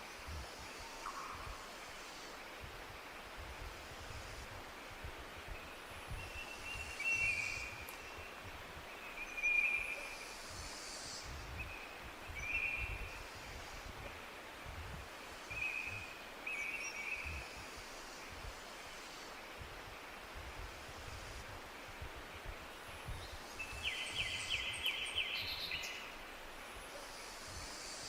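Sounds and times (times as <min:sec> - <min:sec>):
outdoor hiss: 0:00.0 - 0:28.0.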